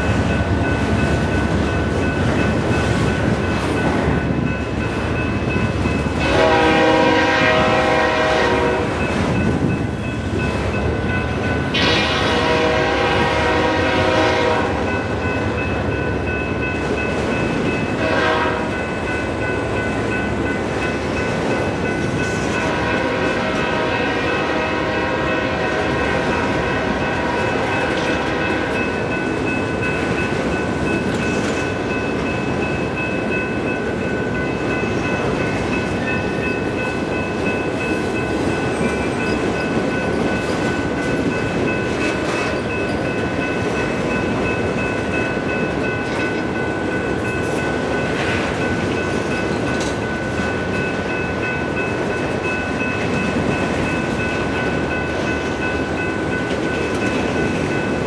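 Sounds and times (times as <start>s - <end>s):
train car clanks: 0.0s - 58.0s
train wheels rumbling on rails: 0.0s - 58.0s.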